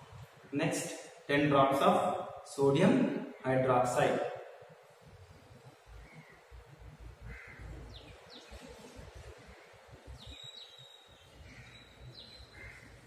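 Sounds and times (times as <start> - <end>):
harsh bird calls: 7.2 - 13.0
high bird chirps: 10.2 - 12.8.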